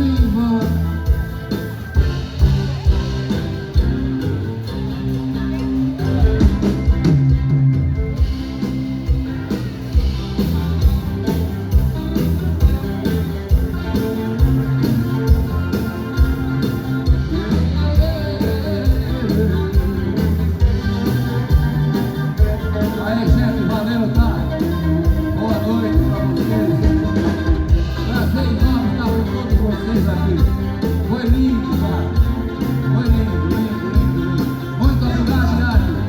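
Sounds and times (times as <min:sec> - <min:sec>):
live rock band playing: 0:00.0 - 0:36.0.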